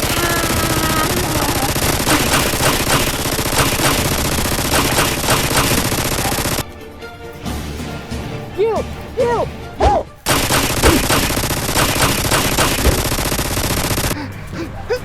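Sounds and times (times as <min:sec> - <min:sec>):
rapid machine-gun fire: 0:00.0 - 0:06.7, 0:10.3 - 0:14.2.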